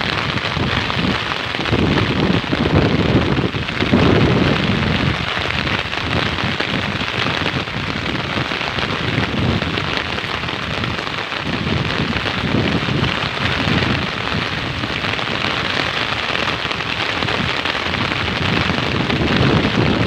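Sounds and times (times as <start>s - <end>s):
low rumbling: 0.0s - 15.5s
heavy rain falling: 0.0s - 20.0s.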